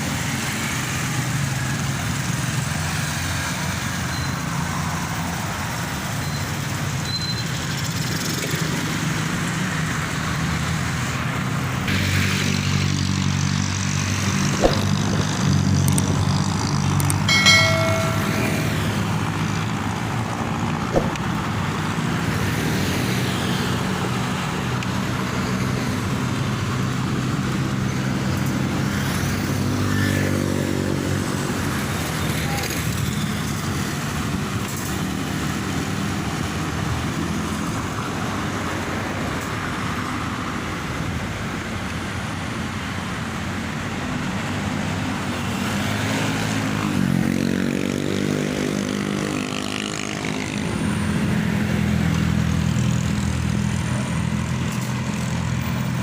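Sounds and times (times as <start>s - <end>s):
road noise: 0.0s - 56.0s
sharp click: 20.9s - 21.3s.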